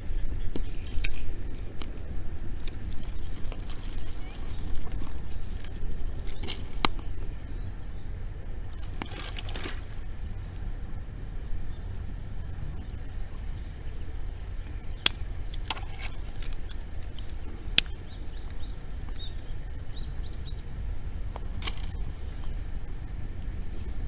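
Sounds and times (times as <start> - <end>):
bonfire crackling: 0.0 - 24.0
low fire rumble: 0.0 - 24.0
loud fire pops: 11.3 - 23.8.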